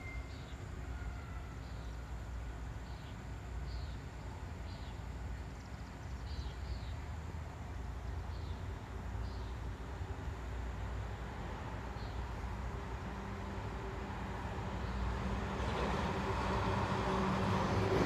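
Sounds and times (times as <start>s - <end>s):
bird chirping: 0.0s - 0.7s, 2.8s - 7.0s.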